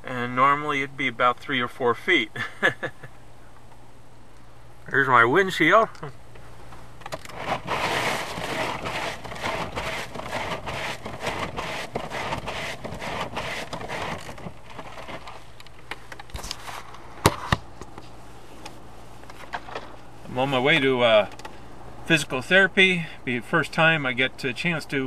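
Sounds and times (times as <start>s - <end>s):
scraping snow off windshield: 7.3s - 15.6s, 16.4s - 16.9s.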